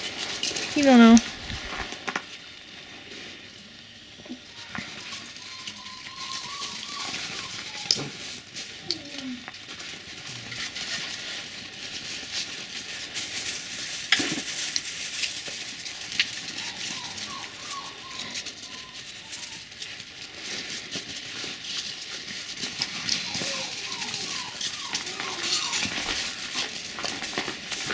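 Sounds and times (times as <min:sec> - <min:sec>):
puppies squeaking and whimpering: 0:04.3 - 0:09.4, 0:15.3 - 0:27.9.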